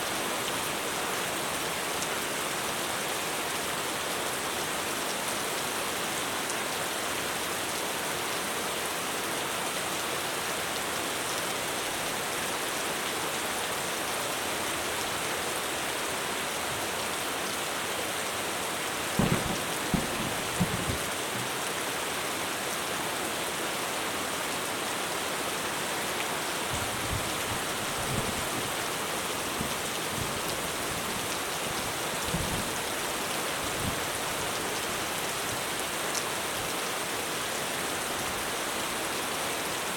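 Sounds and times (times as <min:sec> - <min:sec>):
heavy rain on a roof: 0:00.0 - 0:39.9
low thuds: 0:19.2 - 0:21.1.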